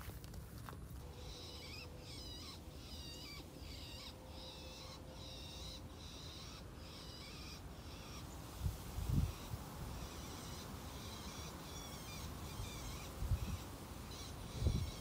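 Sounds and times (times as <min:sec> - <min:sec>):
bird calling high wavy notes: 0:01.0 - 0:08.4.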